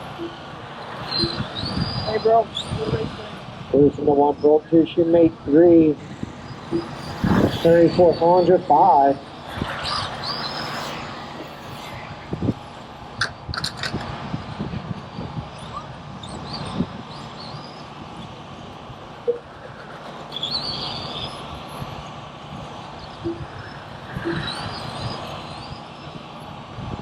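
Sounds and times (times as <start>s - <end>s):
steady noise: 0.0s - 16.2s, 16.8s - 27.0s
toy truck motors whining: 6.0s - 14.0s, 23.0s - 26.2s.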